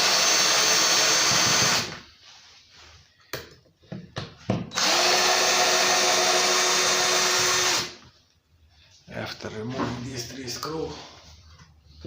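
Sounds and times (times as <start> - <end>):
power drill running: 0.0 - 2.0, 4.7 - 8.0.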